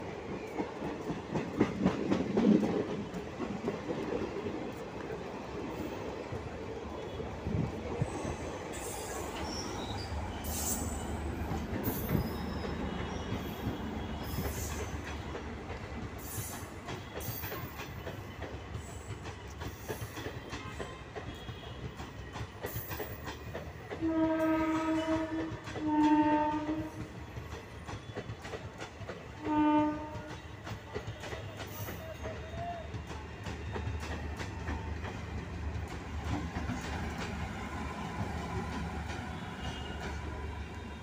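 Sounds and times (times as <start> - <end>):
train wheels clattering on rails: 0.0 - 41.0
train horn blasts: 12.6 - 14.9, 24.0 - 27.1, 29.4 - 32.0, 39.2 - 41.0.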